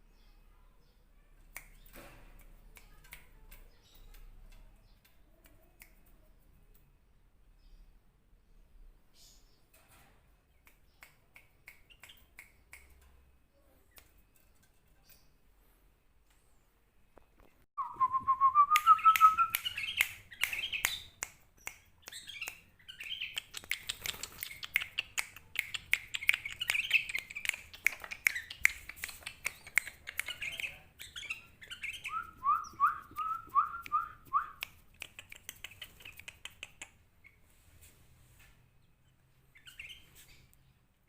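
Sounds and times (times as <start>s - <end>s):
bird calling and chattering: 18.9s - 37.4s.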